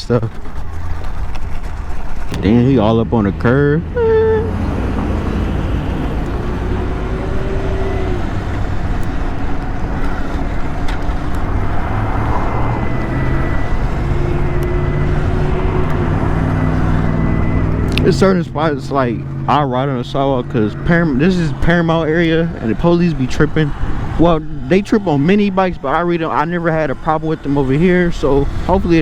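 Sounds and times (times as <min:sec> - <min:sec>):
tyre and wind rumble: 0:00.0 - 0:19.5, 0:20.3 - 0:29.0
electric motor whine: 0:03.9 - 0:18.4.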